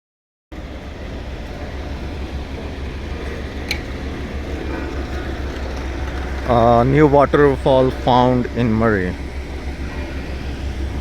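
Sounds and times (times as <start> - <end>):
steady low rumbling: 0.5 - 11.0.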